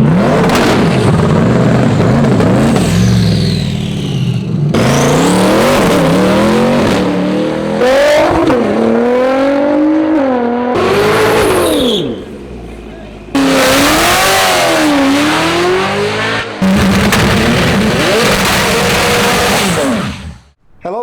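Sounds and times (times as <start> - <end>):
car engine revving: 0.0 - 20.6
high turbo whistle: 11.2 - 12.4.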